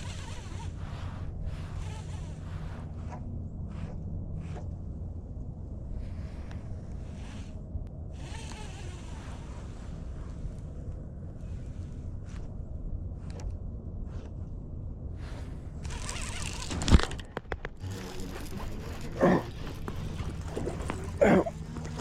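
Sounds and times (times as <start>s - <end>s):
water splashing: 17.8s - 22.0s.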